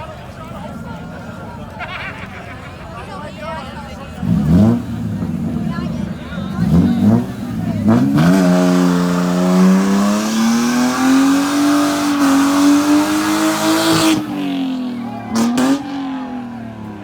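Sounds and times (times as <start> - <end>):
car engine at high revs: 4.0 - 17.0.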